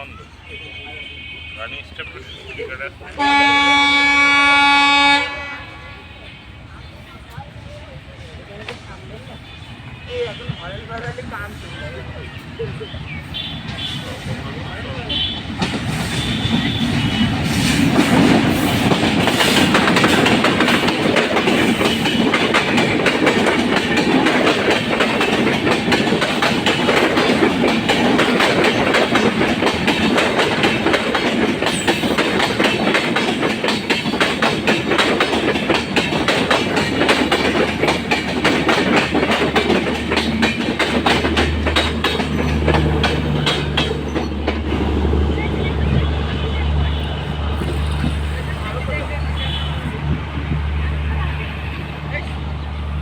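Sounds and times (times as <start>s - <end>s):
train wheels clattering over rail joints: 15.2s - 45.3s.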